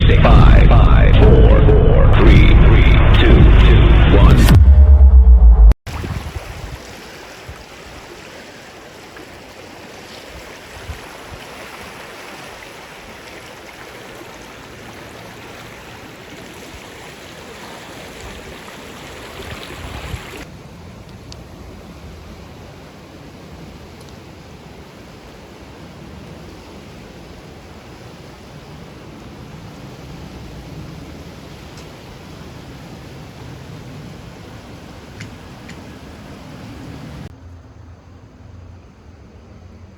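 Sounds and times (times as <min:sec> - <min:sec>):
low rumble: 0:00.0 - 0:05.8
creek rapids rushing: 0:05.9 - 0:20.5.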